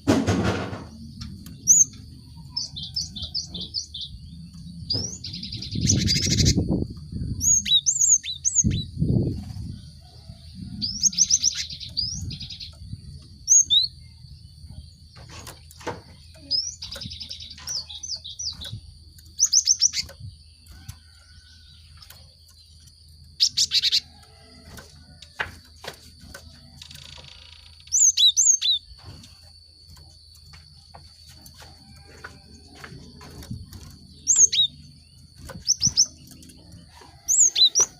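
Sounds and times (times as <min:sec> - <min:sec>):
bird calling in rapid chirps: 0:26.8 - 0:28.9.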